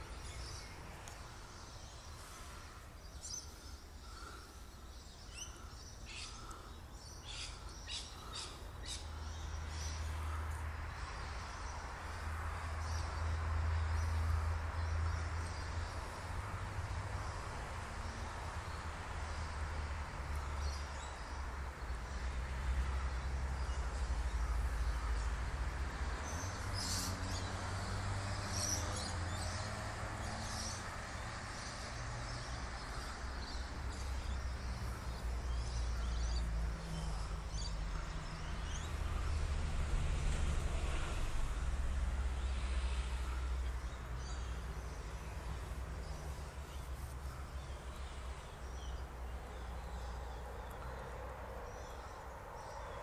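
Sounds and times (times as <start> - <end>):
birds chirping and calling: 0.0 - 10.6, 26.3 - 27.6.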